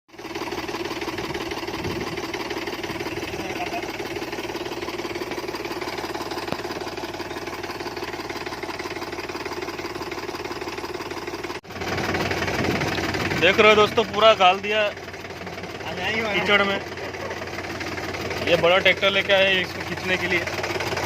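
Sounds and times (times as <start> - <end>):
farm machine engine knocking: 0.1 - 21.0.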